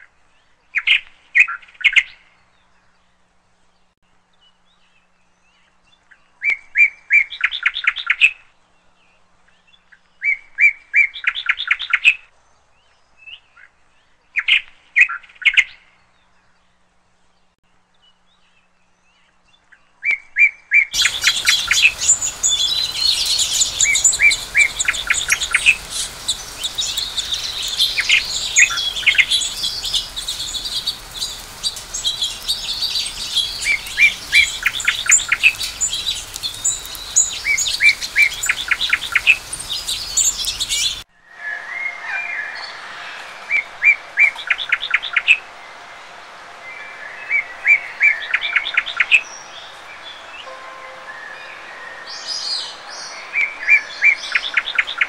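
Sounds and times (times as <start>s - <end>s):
songbirds singing and chirping: 0.0s - 45.4s, 46.6s - 55.0s
steady background hiss: 21.0s - 55.0s.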